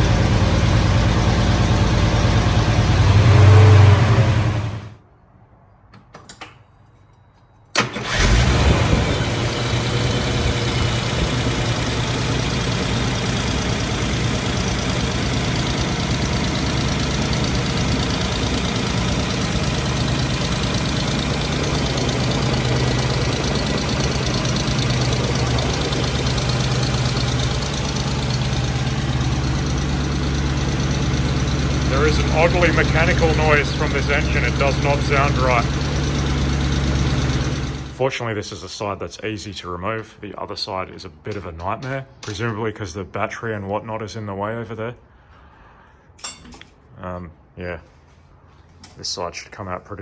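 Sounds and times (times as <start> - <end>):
car engine starting and idling: 0.0 - 5.0, 7.8 - 38.0
mechanical engine noise: 0.0 - 5.0, 7.8 - 38.1.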